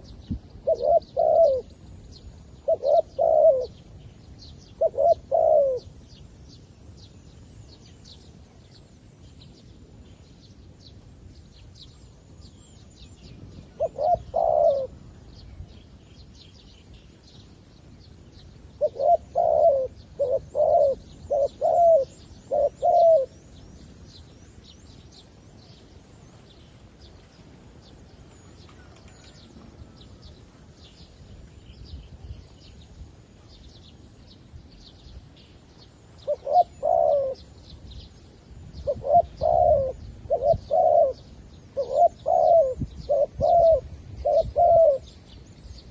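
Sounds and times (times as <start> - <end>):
small birds chirping: 0.0 - 45.9
dove cooing: 0.6 - 1.8, 2.5 - 4.0, 4.6 - 6.0, 13.7 - 15.1, 18.8 - 23.6, 36.2 - 37.6, 38.8 - 45.2.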